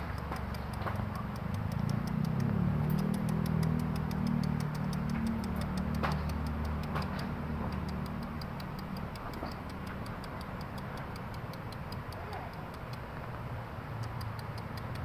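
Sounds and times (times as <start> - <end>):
fast high-pitched ticking: 0.0 - 15.0.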